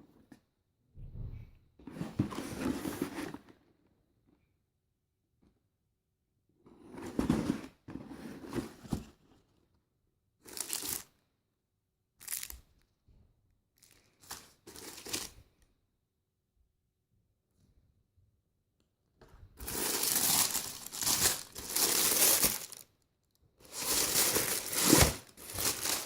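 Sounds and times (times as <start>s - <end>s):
packaging rustling and crinkling: 19.6s - 22.9s, 23.6s - 26.0s.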